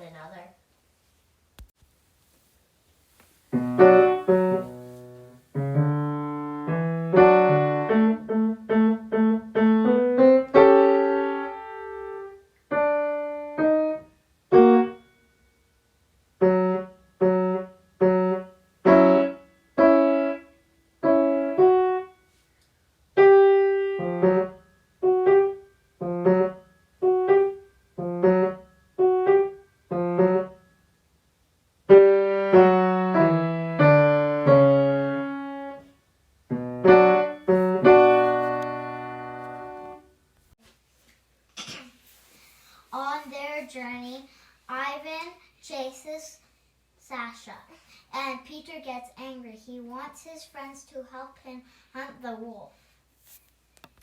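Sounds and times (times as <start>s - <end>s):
solo piano playing: 3.5s - 15.2s, 16.4s - 22.2s, 23.2s - 30.7s, 31.9s - 35.8s, 36.5s - 40.1s.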